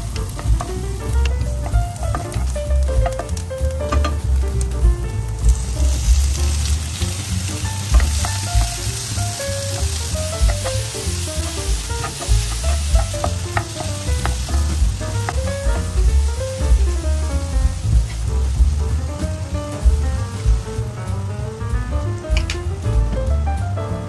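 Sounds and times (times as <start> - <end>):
wooden spatula stirring: 0.0 - 4.7, 5.4 - 16.8
onions sizzling in frying pan: 0.0 - 23.2.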